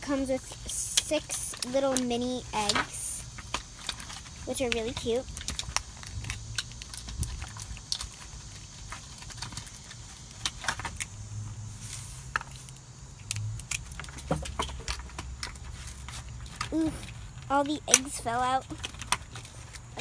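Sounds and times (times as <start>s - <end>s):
plastic toy pieces clicking: 1.0s - 8.2s, 12.7s - 15.6s, 17.8s - 20.0s.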